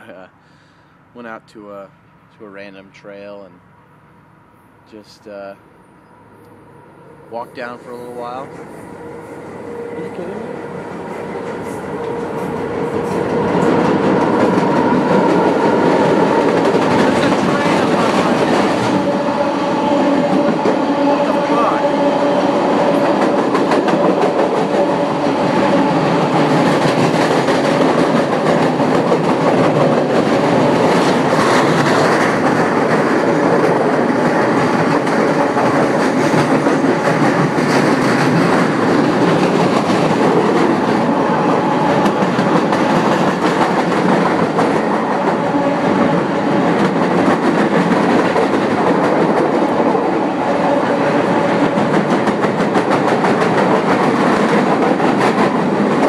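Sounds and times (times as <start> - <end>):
train rumbling overhead: 0.0 - 56.0
wheels clacking over rail joints: 22.0 - 56.0.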